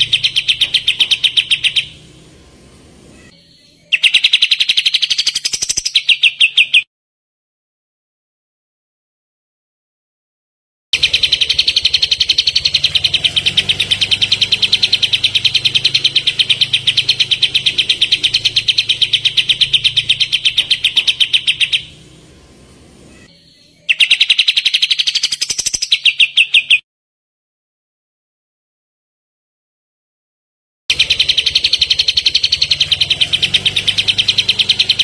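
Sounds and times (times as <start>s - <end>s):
songbird rapid rattling song: 0.0s - 2.5s, 3.9s - 6.9s, 11.0s - 22.6s, 23.2s - 26.8s, 30.9s - 35.0s.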